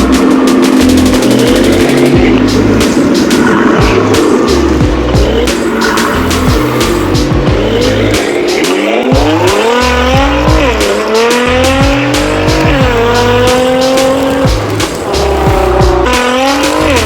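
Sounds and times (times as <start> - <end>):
drum and bass beat: 0.0 - 17.0
sports car engine revving: 0.0 - 17.0.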